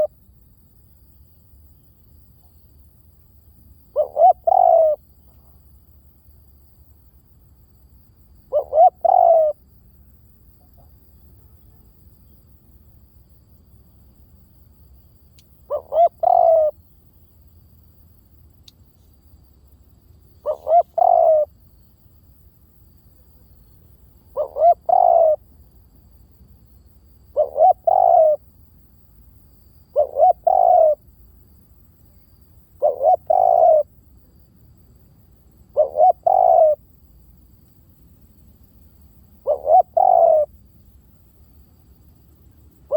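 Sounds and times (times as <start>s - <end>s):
dove cooing: 3.9s - 5.0s, 8.5s - 9.6s, 15.6s - 16.8s, 20.4s - 21.6s, 24.3s - 25.4s, 27.3s - 28.4s, 29.9s - 31.0s, 32.7s - 33.9s, 35.7s - 36.8s, 39.4s - 40.6s.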